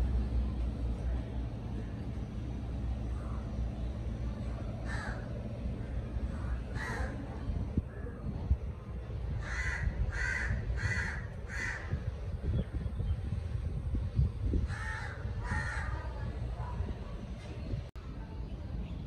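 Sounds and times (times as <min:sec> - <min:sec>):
steady low rumble: 0:00.0 - 0:19.0
harsh cawing bird calls: 0:04.8 - 0:07.3, 0:09.4 - 0:12.2, 0:14.6 - 0:16.1.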